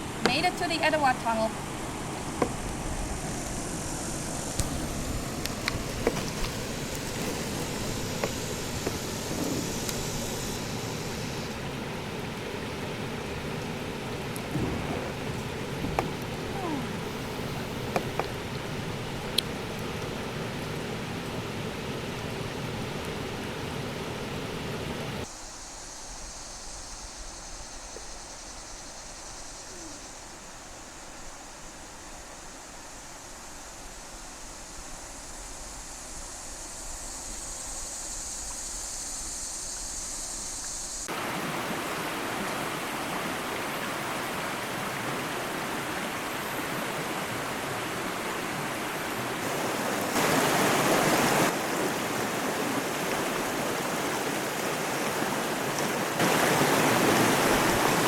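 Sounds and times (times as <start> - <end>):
water splashes: 0.0 - 25.0, 40.6 - 58.0
rushing river water: 0.0 - 25.6, 37.3 - 58.0.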